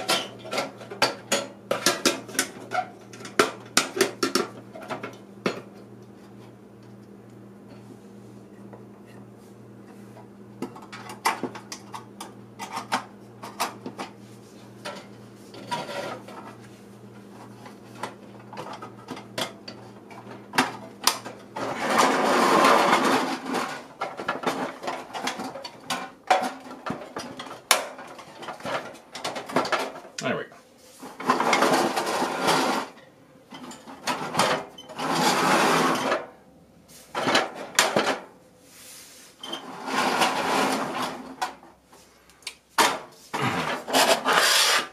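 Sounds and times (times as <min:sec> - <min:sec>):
rustling scrape: 0:21.6 - 0:23.9, 0:30.7 - 0:33.0, 0:38.6 - 0:41.3, 0:43.1 - 0:44.9.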